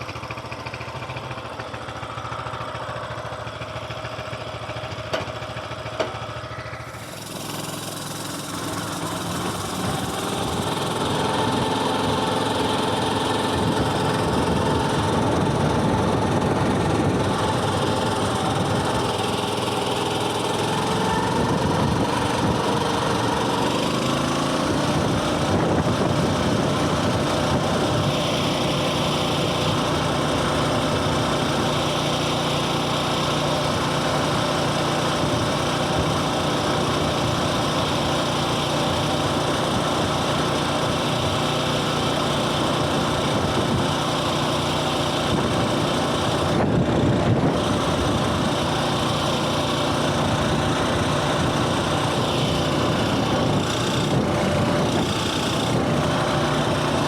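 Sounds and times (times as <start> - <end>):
small single-cylinder engine running: 0.0 - 57.0.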